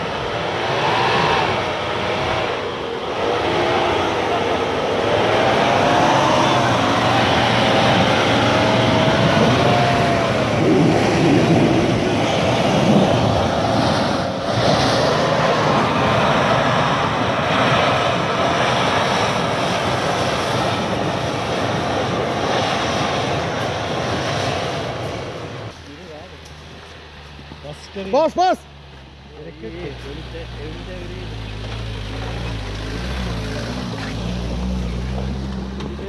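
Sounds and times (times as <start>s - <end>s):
off-road engine revving: 0.0s - 25.4s, 27.5s - 36.0s
steady wash of noise: 0.0s - 26.3s.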